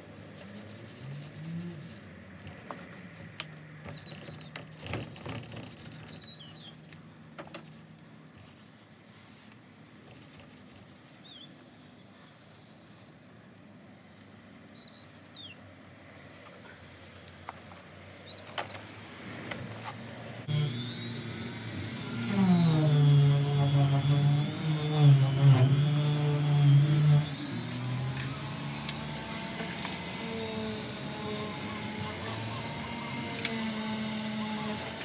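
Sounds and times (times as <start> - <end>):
small birds chirping: 3.6 - 4.8, 5.6 - 7.9, 11.0 - 13.2, 14.6 - 17.2, 18.1 - 19.9.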